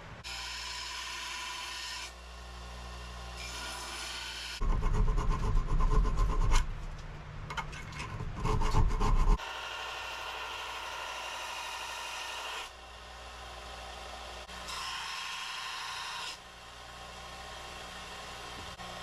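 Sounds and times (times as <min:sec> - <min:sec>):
hand file rasping on steel: 0:08.1 - 0:09.4.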